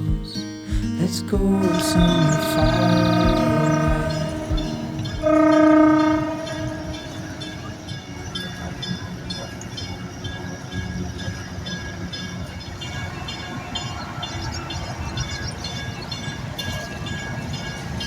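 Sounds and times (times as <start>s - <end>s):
train rumbling past: 0.9s - 7.7s.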